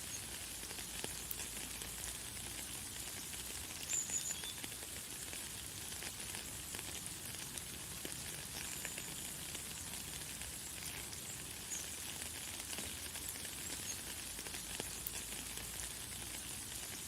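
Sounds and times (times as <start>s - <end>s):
light rain hissing: 0.0s - 17.0s
bird chirp: 3.9s - 4.6s.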